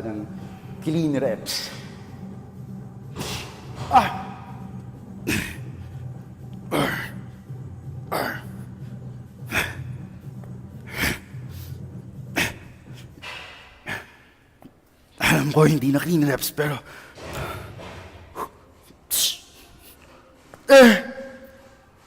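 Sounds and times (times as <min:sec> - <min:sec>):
low hum: 0:00.0 - 0:13.9
man grunting: 0:03.8 - 0:04.6, 0:06.7 - 0:07.2, 0:20.7 - 0:21.4.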